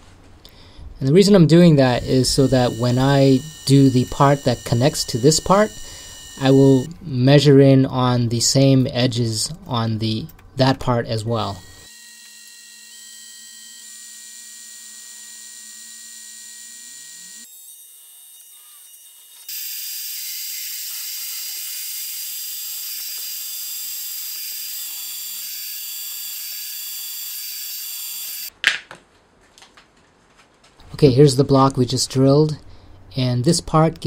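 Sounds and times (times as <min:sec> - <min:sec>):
milling machine motor humming: 0:01.8 - 0:06.9, 0:11.4 - 0:12.9
high-pitched drilling whine: 0:01.9 - 0:06.9, 0:11.4 - 0:28.5.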